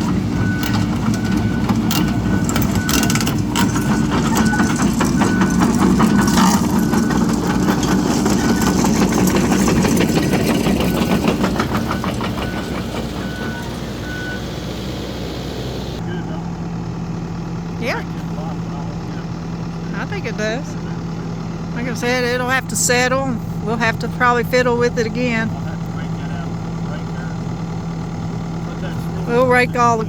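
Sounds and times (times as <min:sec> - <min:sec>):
backup alarm beeping: 0:00.0 - 0:10.1, 0:10.7 - 0:16.0
diesel engine under load: 0:00.0 - 0:30.0
tracks and bucket clanking: 0:00.0 - 0:30.0.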